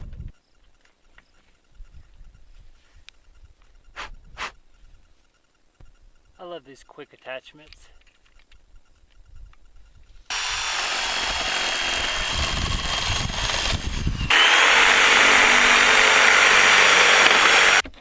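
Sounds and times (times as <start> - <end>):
power drill running: 10.3 - 17.8.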